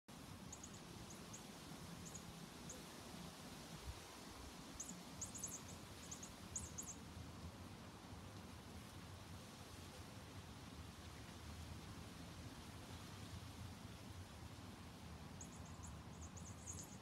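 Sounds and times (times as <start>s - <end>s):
faint high bird chirps: 0.5s - 2.8s, 4.8s - 7.0s, 15.4s - 17.0s.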